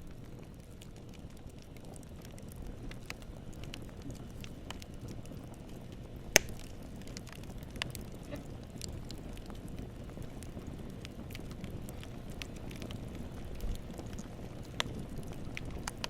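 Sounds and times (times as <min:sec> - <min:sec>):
campfire flames rumbling: 0:00.0 - 0:16.0
wood crackling: 0:00.0 - 0:16.0.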